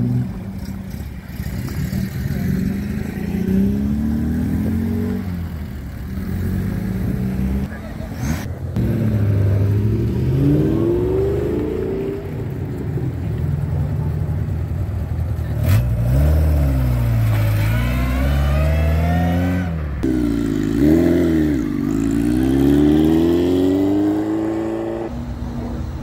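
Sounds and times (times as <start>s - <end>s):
motorcycle engine accelerating: 0.0s - 25.2s
rally car engine revving: 15.4s - 25.2s.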